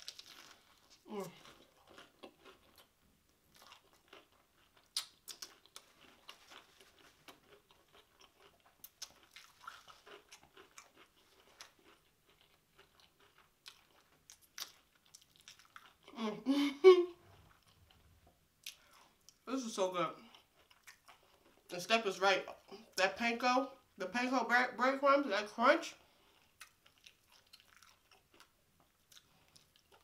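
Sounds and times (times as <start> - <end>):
crunchy chewing: 0.0 - 2.9, 3.5 - 16.1, 20.2 - 21.7, 26.2 - 30.0.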